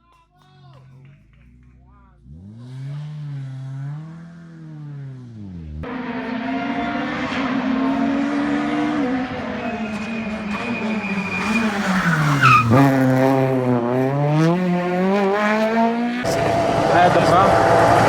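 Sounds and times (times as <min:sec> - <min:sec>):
rally car engine: 0:00.7 - 0:18.0
tyre squeal: 0:09.2 - 0:12.9.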